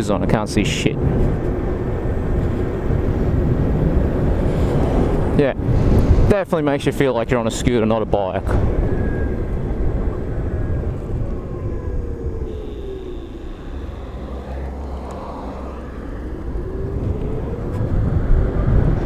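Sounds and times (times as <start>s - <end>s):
wind and road noise: 0.0s - 19.0s
electric motor whine: 10.1s - 19.0s.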